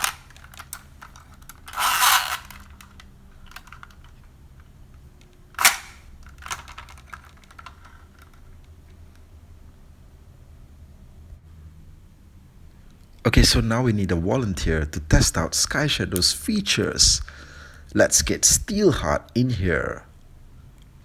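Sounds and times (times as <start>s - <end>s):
toy winch rattling and clicking: 0.0s - 8.8s
small plastic clicks: 0.0s - 9.3s
plastic snap: 5.6s - 8.4s.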